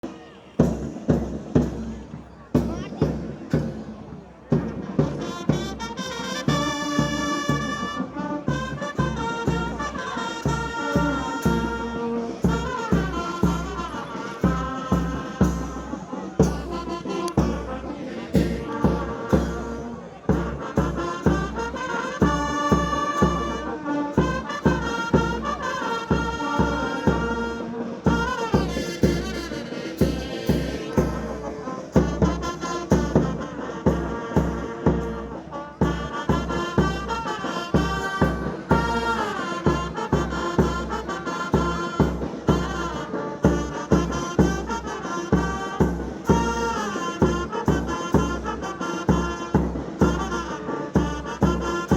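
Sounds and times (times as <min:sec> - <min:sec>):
fast drum beat: 0:02.5 - 0:05.9, 0:35.8 - 0:44.8
brass melody: 0:04.6 - 0:51.9.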